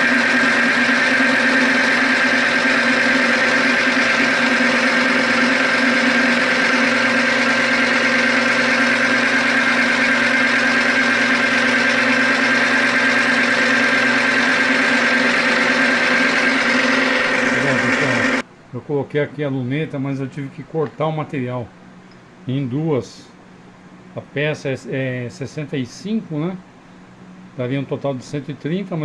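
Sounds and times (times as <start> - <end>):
bench lathe motor whine: 0.0 - 18.4.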